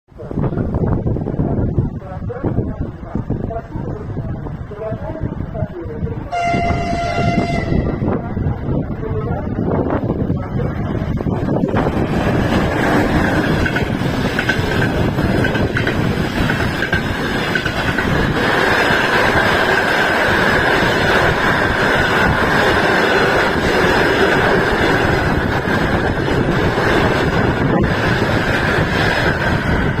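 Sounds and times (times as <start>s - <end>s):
train rolling rumble: 0.1s - 30.0s
wheels clicking over rail joints: 11.7s - 30.0s.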